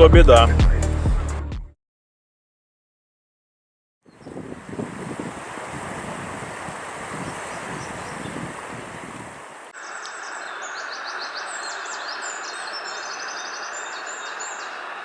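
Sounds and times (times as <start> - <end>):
songbird chirping and trilling: 4.0 - 4.4, 7.2 - 8.5, 9.8 - 15.0
wind buffeting microphone: 4.1 - 9.6
river rushing: 4.6 - 15.0.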